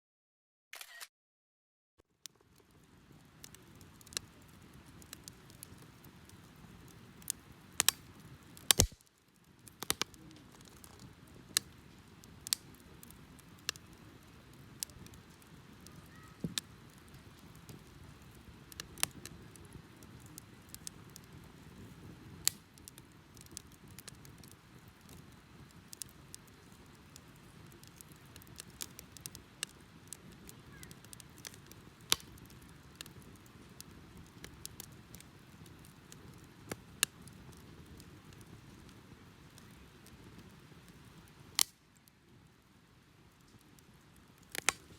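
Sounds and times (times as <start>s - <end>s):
burning wood crackling and popping: 2.1s - 44.9s
rush of flame: 3.4s - 42.1s.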